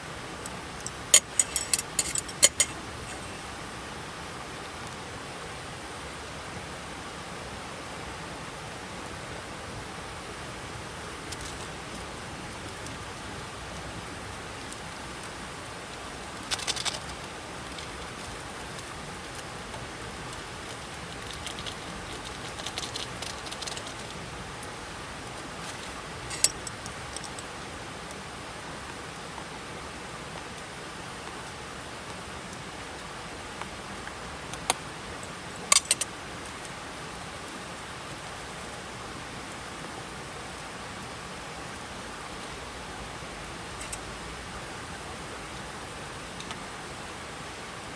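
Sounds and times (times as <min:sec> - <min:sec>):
hiss of rain or running water: 0:00.0 - 0:47.9
short clinks and rattles: 0:00.4 - 0:03.4, 0:16.4 - 0:19.5, 0:20.2 - 0:24.3, 0:25.6 - 0:27.5, 0:35.6 - 0:36.1, 0:43.7 - 0:44.1.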